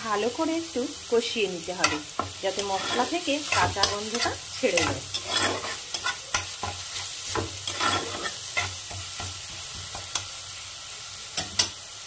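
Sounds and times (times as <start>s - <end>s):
pastes sizzling in hot oil: 0.0s - 12.0s
spatula scraping a pan: 1.7s - 10.4s.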